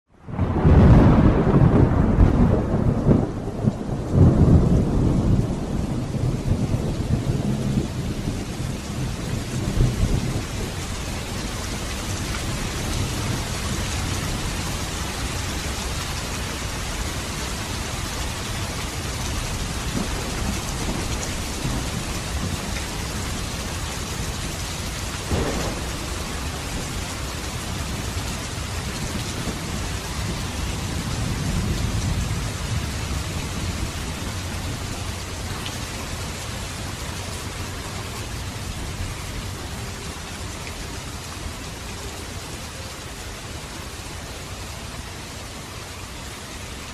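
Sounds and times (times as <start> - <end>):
rain falling: 0.1 - 46.9
distant thunder rolling: 0.3 - 15.6, 18.4 - 35.5.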